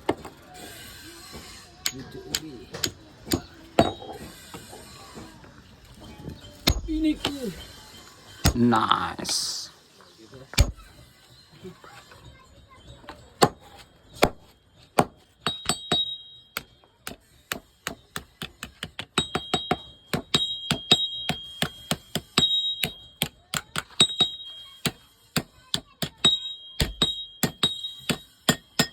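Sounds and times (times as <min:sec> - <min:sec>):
hammer striking iron on anvil: 0:01.8 - 0:04.3, 0:06.6 - 0:07.4, 0:08.4 - 0:08.8, 0:10.6 - 0:10.9, 0:15.0 - 0:28.9.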